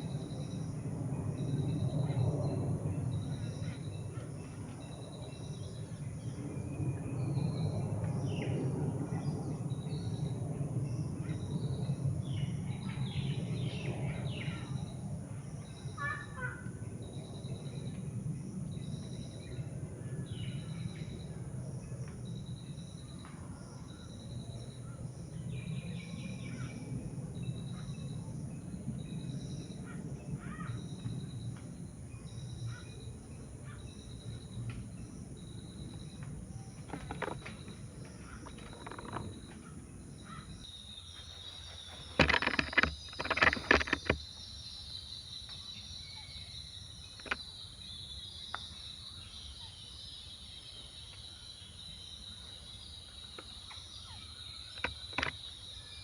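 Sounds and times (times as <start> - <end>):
insect drone: 0.0 - 56.0
bird calls: 35.4 - 56.0.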